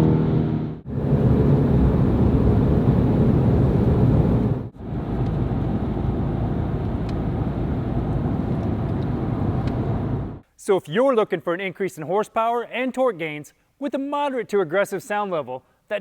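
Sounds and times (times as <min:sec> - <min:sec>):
deep exhaust drone: 0:00.0 - 0:10.4.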